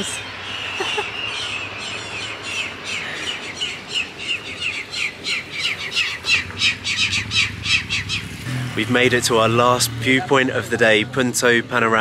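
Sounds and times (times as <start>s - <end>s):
birds squawking harshly: 0.0s - 8.6s.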